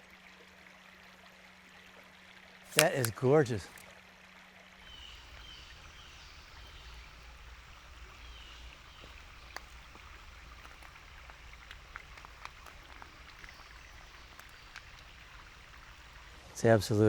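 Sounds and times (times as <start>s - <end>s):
small sharp ticks: 2.7s - 3.1s, 3.7s - 3.9s, 4.8s - 16.5s
stream rushing: 2.7s - 3.8s, 4.8s - 16.7s.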